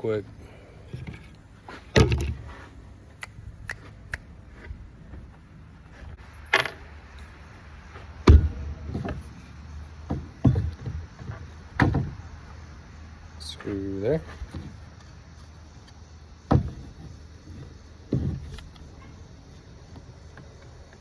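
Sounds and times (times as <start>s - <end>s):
wooden pieces knocking: 1.9s - 2.4s, 6.5s - 7.2s.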